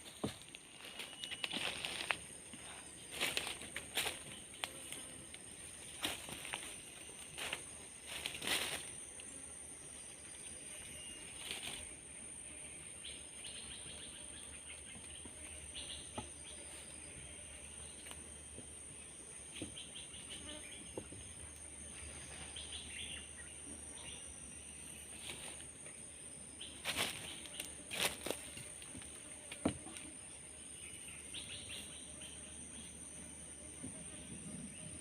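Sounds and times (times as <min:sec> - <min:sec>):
high-pitched insect drone: 0:00.2 - 0:14.4.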